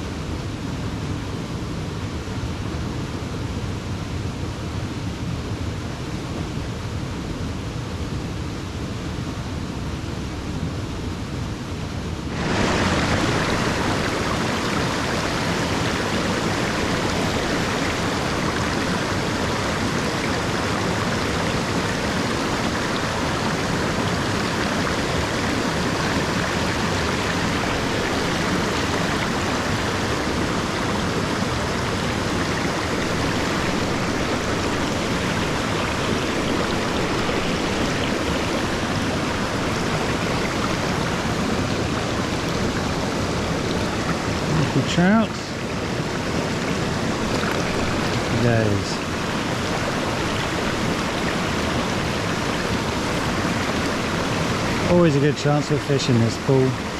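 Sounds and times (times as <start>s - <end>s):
stream splashing over rocks: 12.3s - 56.9s.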